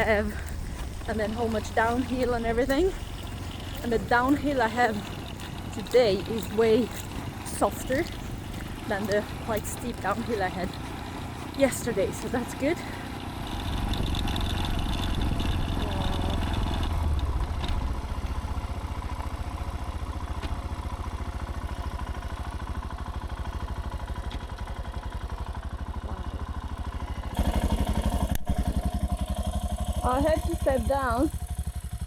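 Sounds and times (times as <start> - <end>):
motorcycle engine thumping: 0.0 - 20.9.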